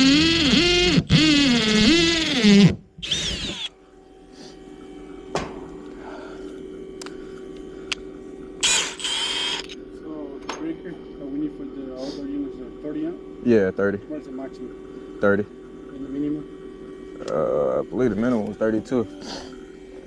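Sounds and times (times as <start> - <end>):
cordless power drill running: 0.0 - 3.8, 8.6 - 9.7
low steady hum: 0.1 - 20.0.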